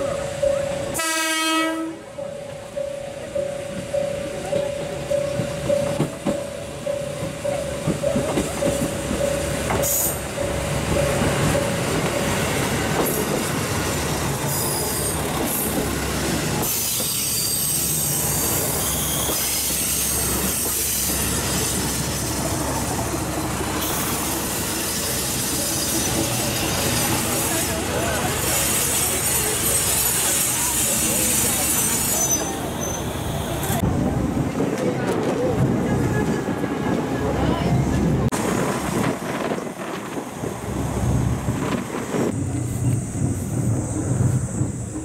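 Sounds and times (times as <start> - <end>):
diesel railcar engine rumble: 0.0 - 45.0
high squealing wheels and brakes: 14.4 - 15.8, 16.6 - 22.5, 23.8 - 33.8.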